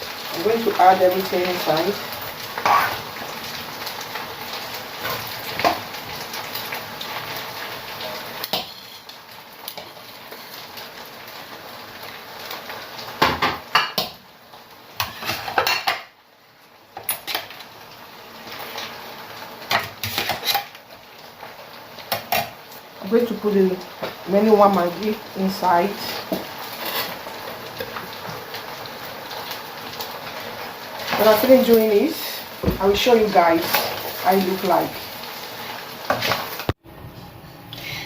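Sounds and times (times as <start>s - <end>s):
metal spoon scraping a pot: 2.6s - 3.0s, 26.7s - 27.2s.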